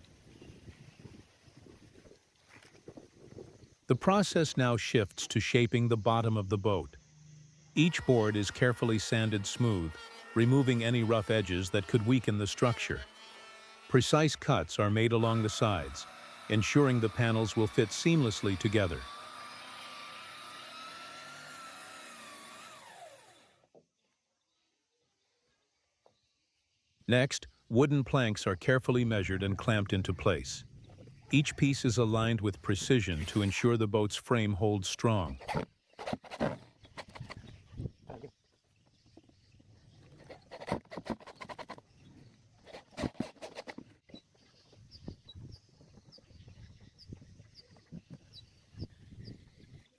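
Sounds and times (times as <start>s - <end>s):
power tool whining: 6.9s - 23.8s, 31.5s - 33.8s.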